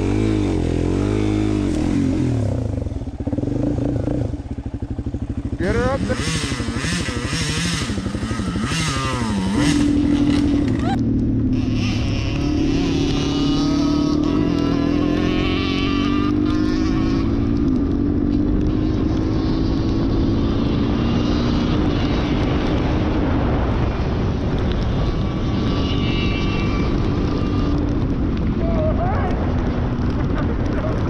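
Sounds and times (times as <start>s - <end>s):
dirt bike engine running: 0.0s - 31.0s
wind rumbling on microphone: 0.0s - 31.0s.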